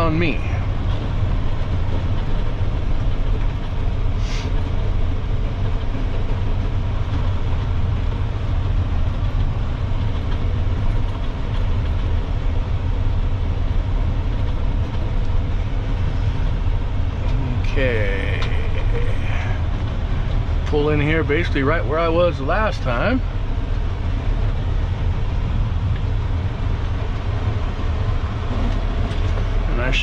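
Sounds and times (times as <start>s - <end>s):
diesel truck engine rumbling: 0.0s - 30.0s
short hiss: 4.2s - 4.6s.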